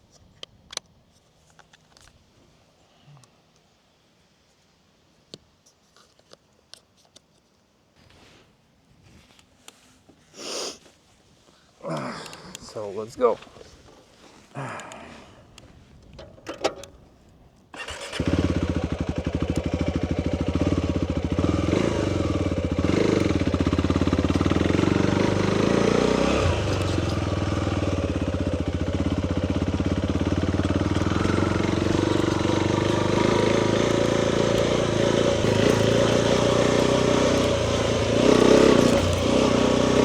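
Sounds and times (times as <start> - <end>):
motorcycle engine running: 17.8 - 40.0.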